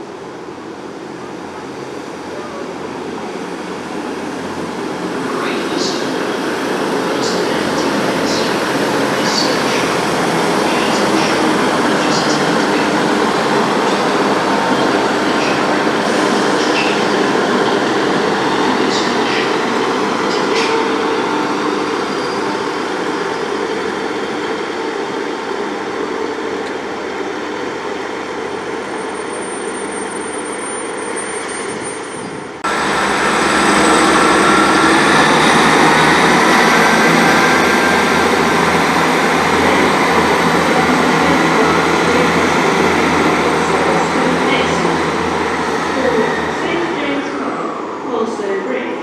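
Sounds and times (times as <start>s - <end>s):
train engine and rail noise: 0.0s - 49.0s.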